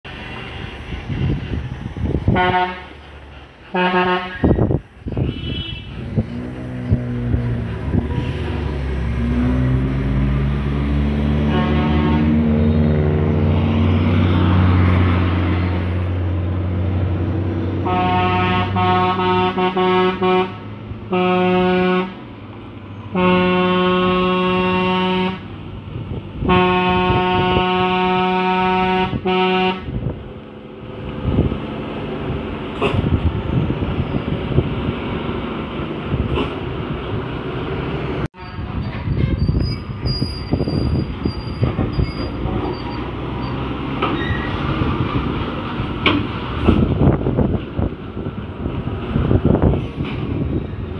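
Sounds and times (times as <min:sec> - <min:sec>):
road traffic noise: 0:00.0 - 0:50.9
truck engine rumble: 0:00.0 - 0:50.9
truck horn blasts: 0:02.3 - 0:03.0, 0:03.7 - 0:06.2, 0:11.4 - 0:13.1, 0:17.8 - 0:22.3, 0:23.1 - 0:25.5, 0:26.4 - 0:30.1, 0:38.4 - 0:38.8
thin high squeal: 0:38.4 - 0:43.6.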